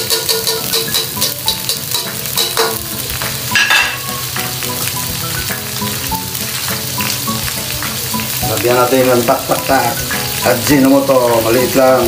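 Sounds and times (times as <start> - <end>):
spatula scraping and knocking pan: 0.0 - 4.1
food sizzling in oil: 0.0 - 12.0.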